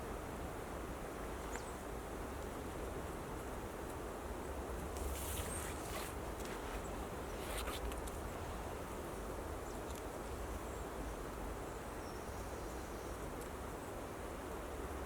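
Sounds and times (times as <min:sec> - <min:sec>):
low rumble in woods: 0:00.0 - 0:15.0
faint clicks: 0:09.8 - 0:10.1.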